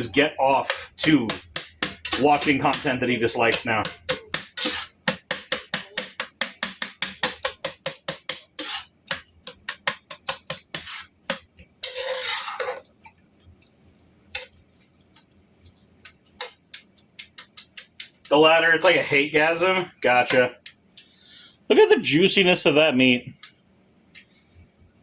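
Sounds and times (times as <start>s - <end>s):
utensil knocking and scraping skillet: 0.0s - 12.8s, 14.3s - 14.8s, 16.4s - 18.4s.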